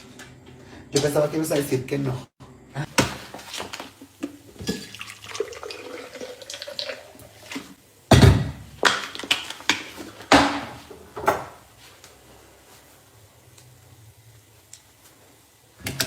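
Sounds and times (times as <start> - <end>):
water running and splashing: 3.4 - 7.8.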